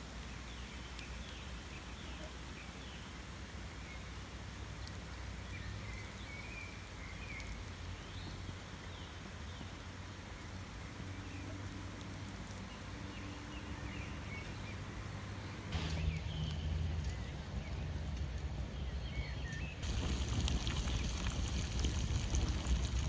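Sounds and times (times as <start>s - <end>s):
faint ticks: 4.8s - 5.2s, 7.3s - 7.6s
low hum: 15.4s - 23.0s
faint bird chirps: 15.5s - 18.0s
steady hiss: 15.7s - 23.0s.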